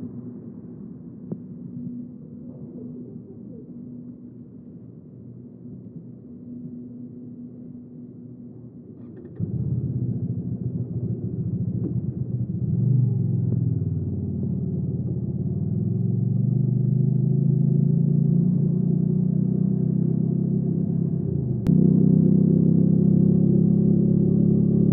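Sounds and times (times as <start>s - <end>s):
motorcycle engine running: 9.4s - 24.9s.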